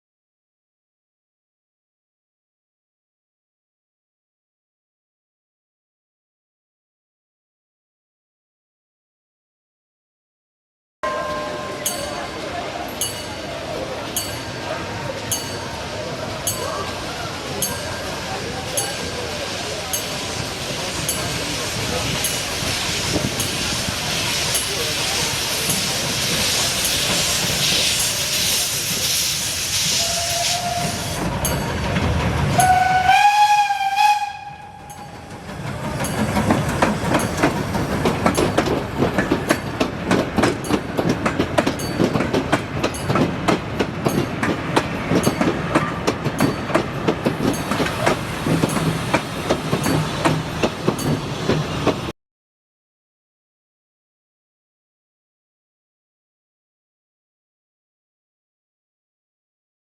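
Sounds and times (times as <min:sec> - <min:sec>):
train wheels clicking over rail joints: 0:12.9 - 0:33.0, 0:34.8 - 0:52.1
steam hissing: 0:15.5 - 0:31.9, 0:47.3 - 0:52.1
steam train whistle blast: 0:27.8 - 0:31.2, 0:32.6 - 0:35.1.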